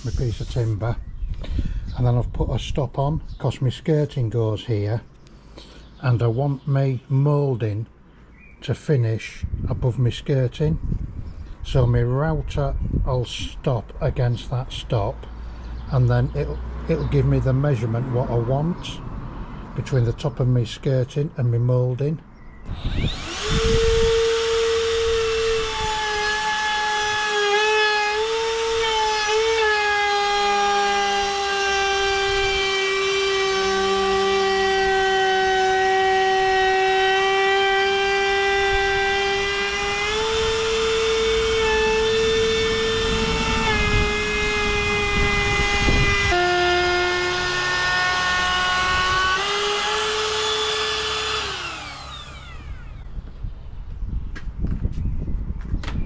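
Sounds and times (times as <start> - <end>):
electric router whining: 22.7 - 53.4.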